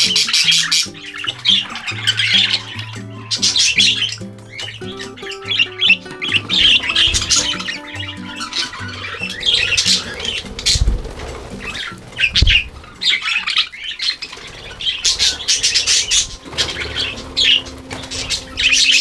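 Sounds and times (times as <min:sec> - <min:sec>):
budgerigars chattering and squawking: 0:00.0 - 0:19.0
wings flapping: 0:00.0 - 0:19.0
low thumps: 0:09.1 - 0:13.1.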